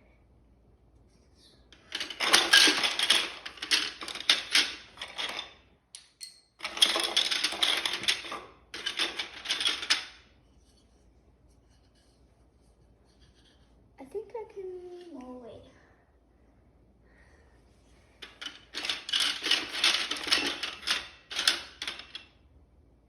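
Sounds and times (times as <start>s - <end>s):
plastic pieces clattering: 1.8s - 5.6s, 6.6s - 10.2s, 18.2s - 22.3s.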